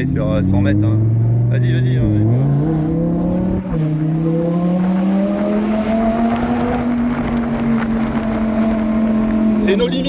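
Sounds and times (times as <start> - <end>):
sports car engine accelerating: 0.0 - 10.0.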